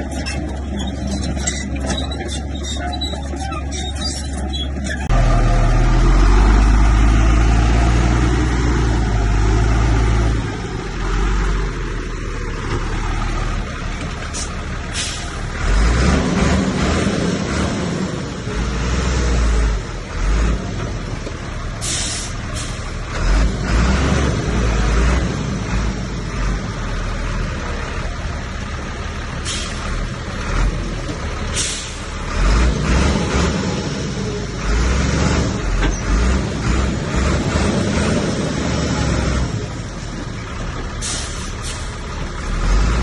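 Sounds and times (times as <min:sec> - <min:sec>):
heavy diesel machinery under load: 0:00.0 - 0:43.0
air hiss bursts: 0:21.8 - 0:22.8.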